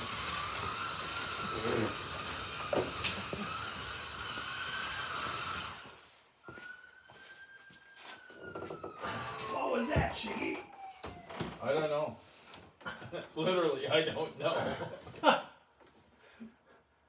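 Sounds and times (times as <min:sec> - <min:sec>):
tyres hissing along track: 0:00.0 - 0:05.9
slot car motors whining: 0:00.0 - 0:06.1.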